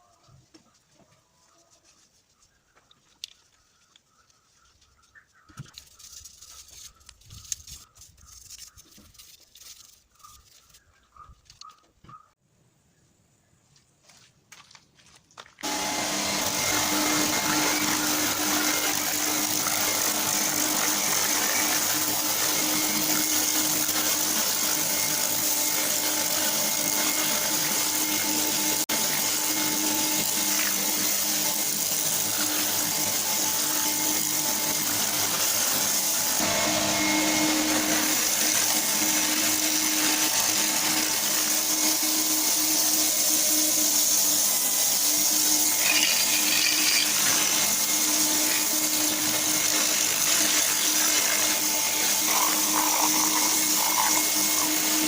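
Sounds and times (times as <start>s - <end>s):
small electric motor humming: 15.6s - 55.0s.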